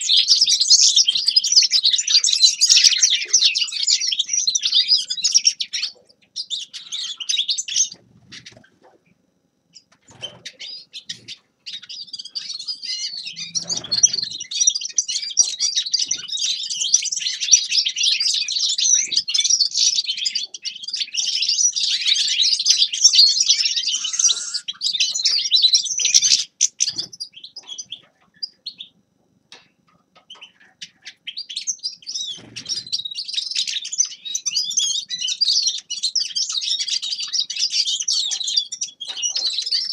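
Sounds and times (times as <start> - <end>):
finch twittering song: 9.7 - 39.9.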